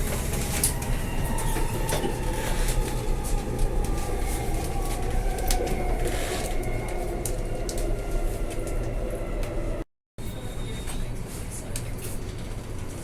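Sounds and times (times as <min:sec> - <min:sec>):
train motor whine: 0:00.0 - 0:09.8
train rumbling: 0:00.0 - 0:13.0.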